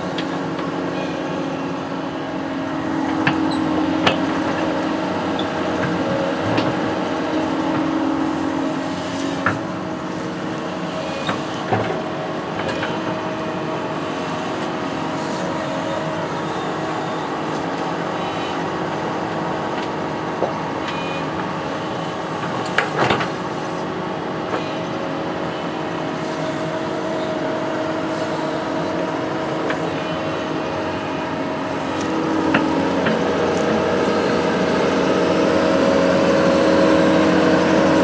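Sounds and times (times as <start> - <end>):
construction machine engine running: 0.0 - 38.0.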